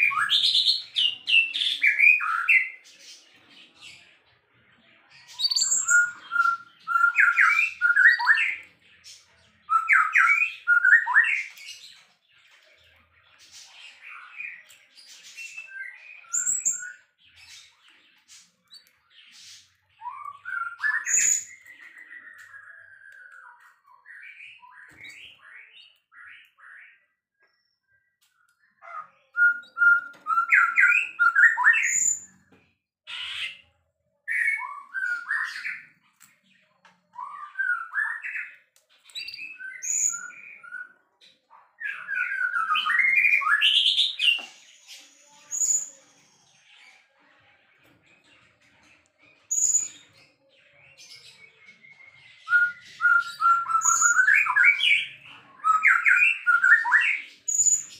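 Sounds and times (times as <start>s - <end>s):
songbird singing varied song: 5.3s - 8.7s, 29.4s - 32.4s, 34.3s - 41.0s, 51.0s - 57.9s.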